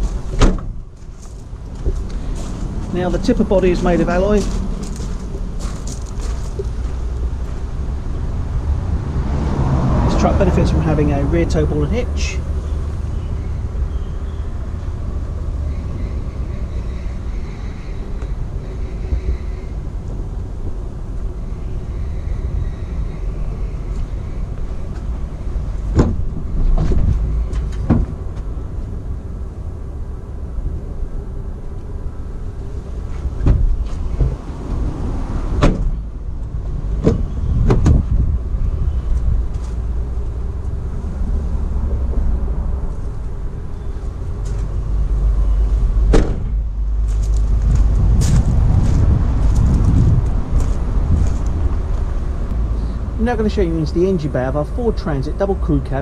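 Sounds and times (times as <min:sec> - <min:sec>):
low outdoor rumble: 0:00.0 - 0:56.0
sharp knocks and clunks: 0:00.3 - 0:00.8, 0:25.9 - 0:28.2, 0:33.4 - 0:34.4, 0:35.6 - 0:36.0, 0:37.0 - 0:38.2, 0:46.1 - 0:46.6.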